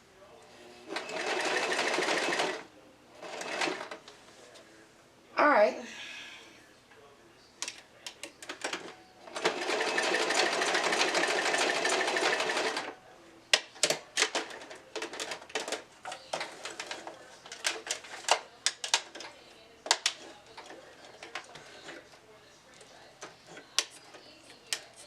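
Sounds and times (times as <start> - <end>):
sewing machine stitching: 0.9 - 2.6, 3.2 - 4.0, 8.7 - 12.9.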